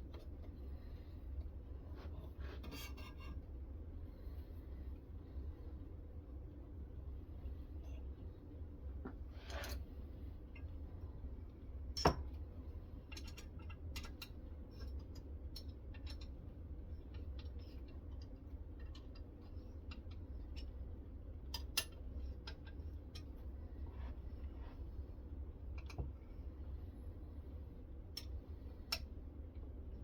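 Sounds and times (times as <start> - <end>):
steady low hum: 0.0 - 30.0
metal parts clicking and tapping: 13.0 - 16.4.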